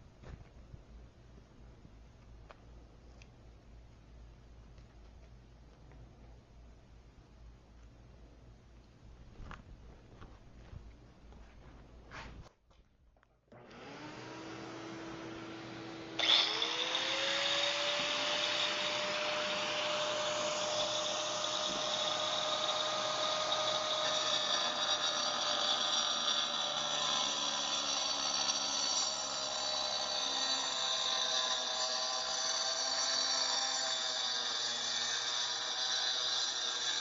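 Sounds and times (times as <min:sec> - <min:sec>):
vacuum cleaner running: 0:13.5 - 0:24.2
angle grinder whining: 0:13.5 - 0:37.0.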